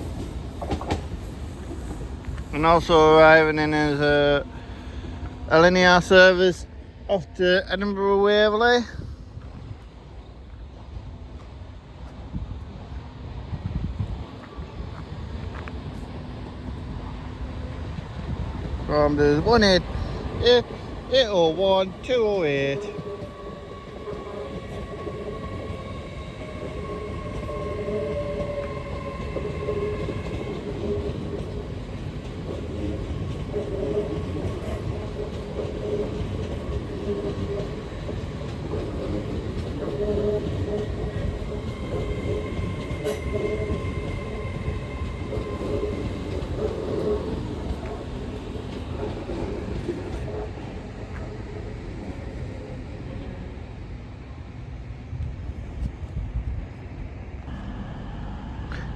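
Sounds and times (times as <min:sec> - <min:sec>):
train rumbling and whining: 0:00.0 - 0:58.9.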